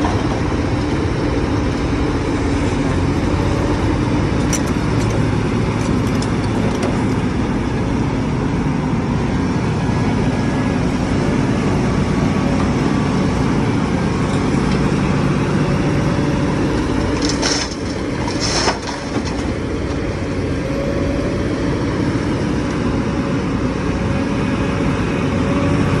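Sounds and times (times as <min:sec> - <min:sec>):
diesel excavator engine running: 0:00.0 - 0:26.0.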